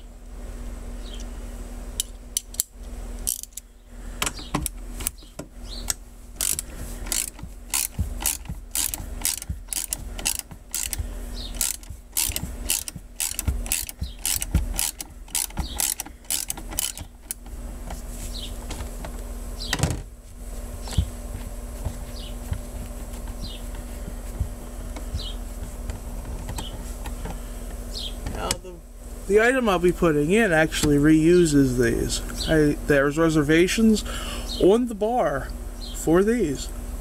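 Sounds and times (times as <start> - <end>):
steady low hum: 0.0 - 37.0
ratchet wrench clicking: 2.0 - 3.6, 5.9 - 17.5.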